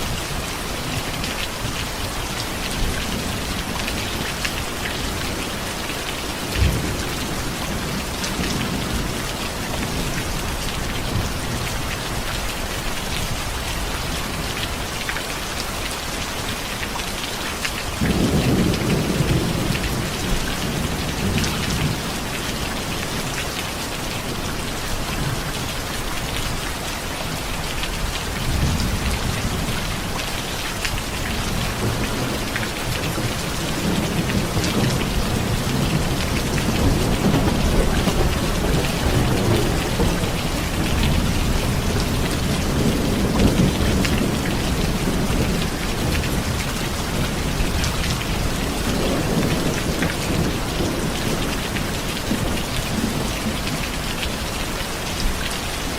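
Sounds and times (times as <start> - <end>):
thunder rumbling: 0.0 - 11.8, 18.0 - 23.3, 30.9 - 54.0
steady rain falling: 0.0 - 55.9.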